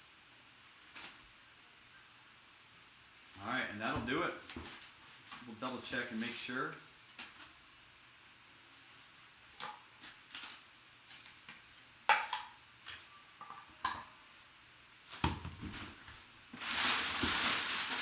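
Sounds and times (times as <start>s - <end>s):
paper crinkling: 8.8s - 11.7s, 15.7s - 18.0s.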